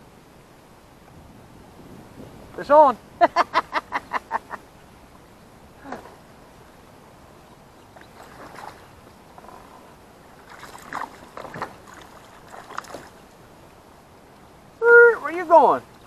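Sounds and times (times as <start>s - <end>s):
soft water splashes: 5.2s - 16.0s.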